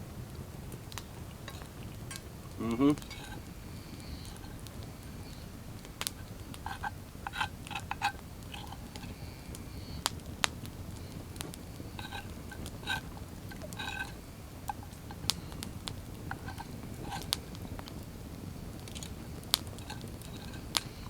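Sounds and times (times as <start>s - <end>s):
metal utensils tapping dishes: 1.5s - 2.2s, 3.0s - 3.5s, 6.2s - 9.2s, 12.0s - 15.2s, 16.3s - 17.4s, 19.8s - 21.0s.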